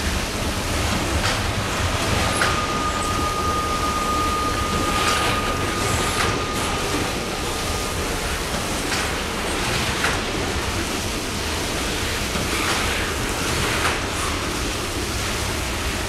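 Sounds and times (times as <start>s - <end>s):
freight cars rolling on rails: 0.0s - 16.0s
thin steady squeal: 1.5s - 9.2s.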